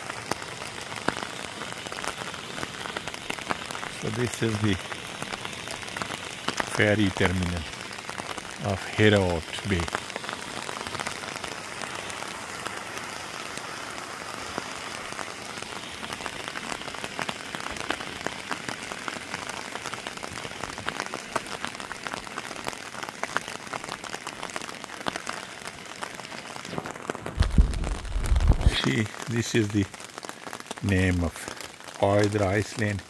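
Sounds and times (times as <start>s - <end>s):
steady rain falling: 0.0s - 33.0s
short low rumble: 27.4s - 28.8s.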